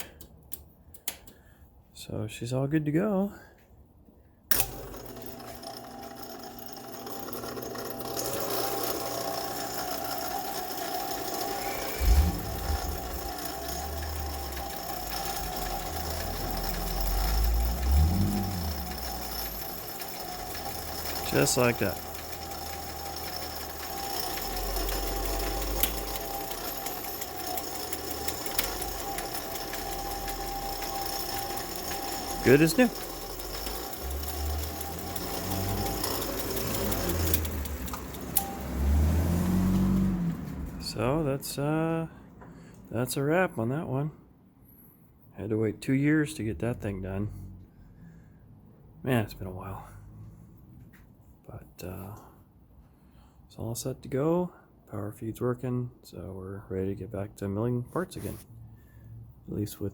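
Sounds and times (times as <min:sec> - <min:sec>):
motor and gears whirring: 0:04.5 - 0:41.2.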